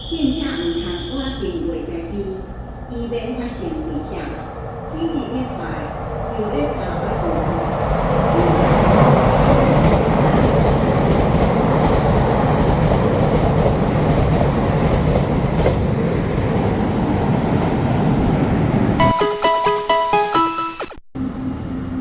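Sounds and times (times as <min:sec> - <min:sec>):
train wheels rushing on rail: 0:04.9 - 0:19.0.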